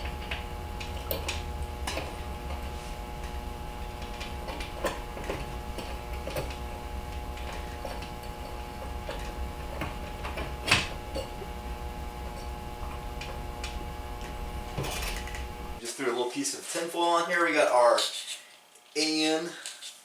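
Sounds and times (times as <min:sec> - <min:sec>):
steady shop hum: 0:00.0 - 0:16.2
small metal parts clicking: 0:13.2 - 0:15.4.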